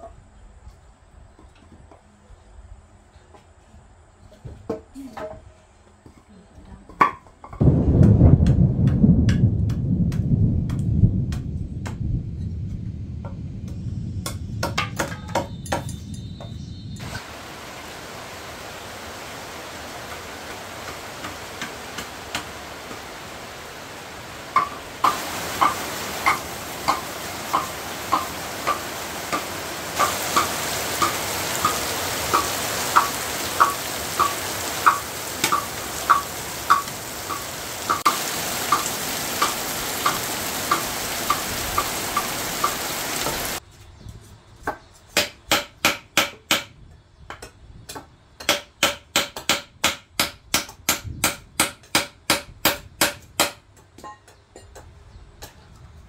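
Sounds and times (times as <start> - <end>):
food sizzling in pan: 17.0 - 43.6.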